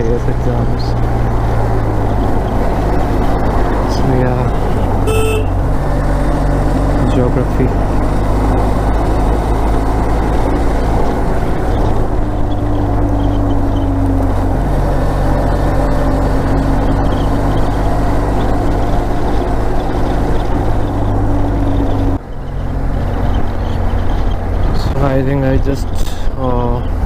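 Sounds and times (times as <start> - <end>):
motorcycle engine running: 0.0 - 25.6
wind noise on microphone: 16.4 - 27.0.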